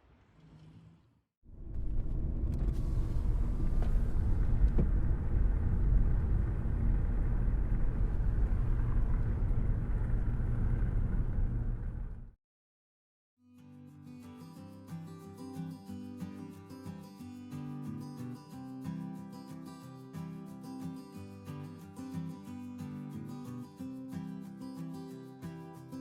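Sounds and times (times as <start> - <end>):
low rumble: 1.5 - 12.4.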